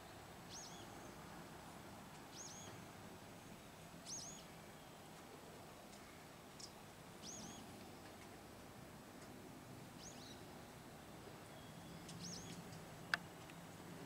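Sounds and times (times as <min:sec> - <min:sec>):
small bird chirping: 0:00.5 - 0:01.2, 0:02.2 - 0:02.9, 0:04.0 - 0:05.2, 0:05.9 - 0:08.2, 0:10.0 - 0:10.8, 0:11.5 - 0:13.6.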